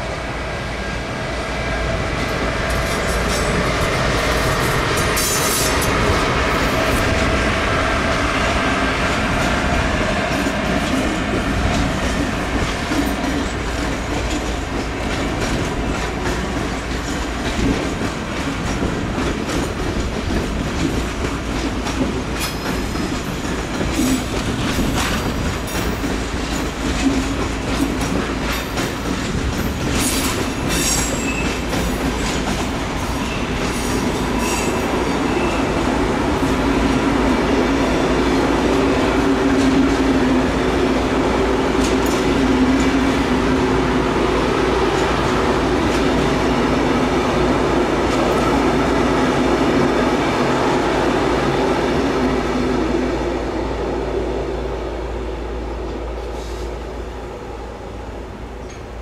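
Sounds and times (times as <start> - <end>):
train wheels clicking over track: 2.0 - 49.0.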